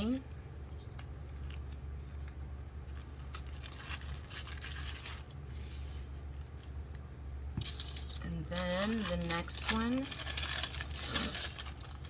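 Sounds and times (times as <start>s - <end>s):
steady low hum: 0.0s - 12.0s
plastic bags crinkling: 2.9s - 5.5s, 7.6s - 12.0s.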